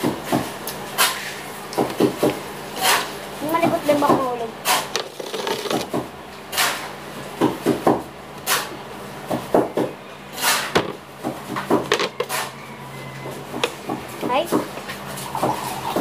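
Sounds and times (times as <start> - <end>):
loud crunches of eating: 4.7 - 6.7.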